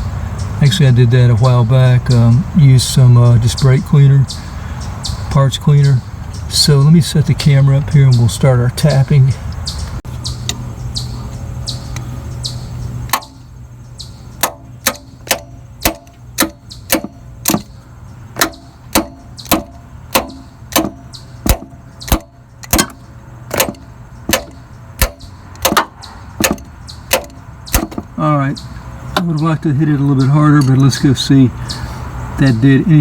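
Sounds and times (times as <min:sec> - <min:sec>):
steady hum: 0:00.0 - 0:33.0
metal tapping on metal: 0:13.1 - 0:13.6, 0:14.4 - 0:17.8, 0:18.4 - 0:31.0.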